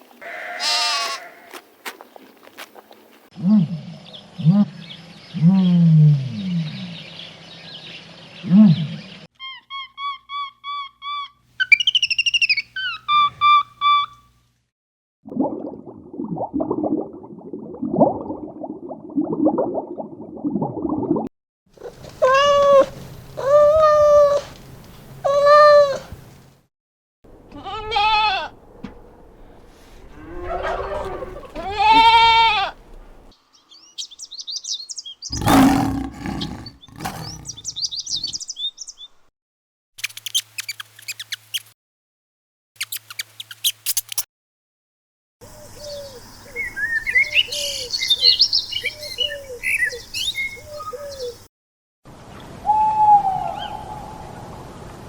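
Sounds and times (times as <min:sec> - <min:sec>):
rising and falling animal calls: 0:30.0 - 0:32.3, 0:35.3 - 0:38.3
animal growling: 0:35.3 - 0:38.3.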